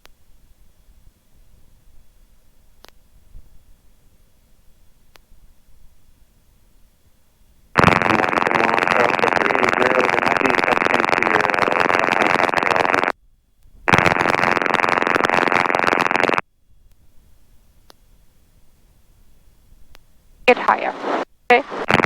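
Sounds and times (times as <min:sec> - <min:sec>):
loud radio static bursts: 0:07.8 - 0:13.1, 0:13.9 - 0:16.4, 0:20.5 - 0:22.0.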